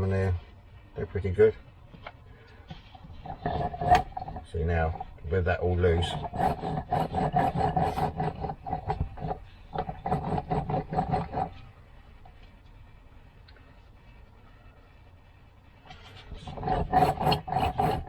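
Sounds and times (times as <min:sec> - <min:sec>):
engine bearings grinding: 0:02.7 - 0:12.5, 0:15.8 - 0:18.0.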